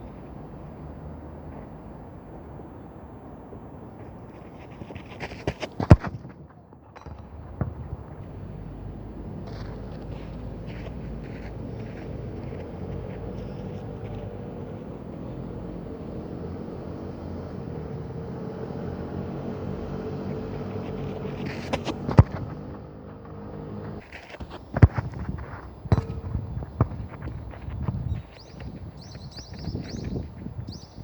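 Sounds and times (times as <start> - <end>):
steady engine hum: 0.0 - 30.7
football being kicked: 4.7 - 17.3, 20.1 - 30.5.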